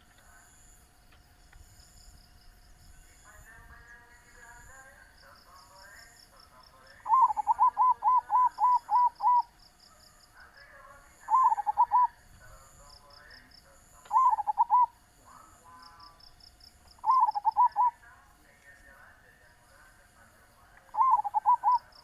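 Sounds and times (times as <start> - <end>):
dove cooing: 6.9 - 9.5, 11.2 - 12.2, 14.1 - 16.0, 17.0 - 18.0, 20.8 - 22.0
soft chirps: 7.0 - 10.0, 11.2 - 12.4, 13.9 - 15.0, 15.7 - 18.1, 20.8 - 22.0.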